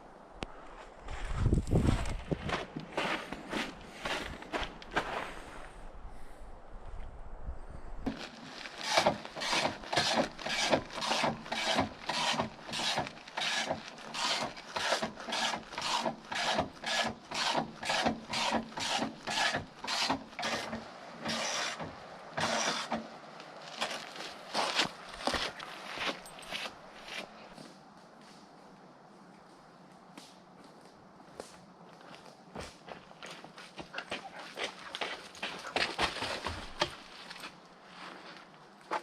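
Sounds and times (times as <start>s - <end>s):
hand saw cutting wood: 8.1s - 23.1s.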